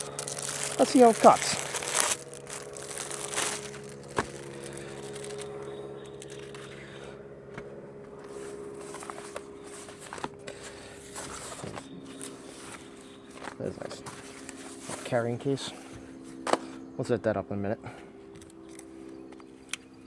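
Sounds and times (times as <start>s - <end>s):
steady multi-pitched hum: 0.0s - 20.0s
knocks and scrapes of handled equipment: 8.2s - 15.2s.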